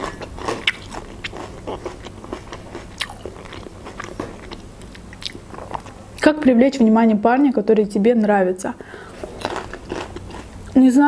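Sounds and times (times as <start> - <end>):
person chewing crisp pepper: 0.0 - 6.0, 9.1 - 10.8.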